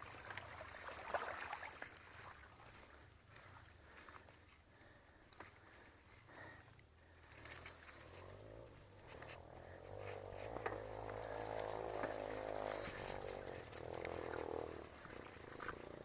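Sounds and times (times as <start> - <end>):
motor engine running: 7.7 - 16.0.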